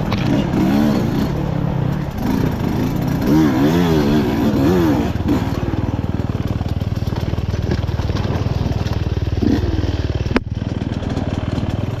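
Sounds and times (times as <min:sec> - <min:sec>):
dirt bike engine idling: 0:04.4 - 0:12.0.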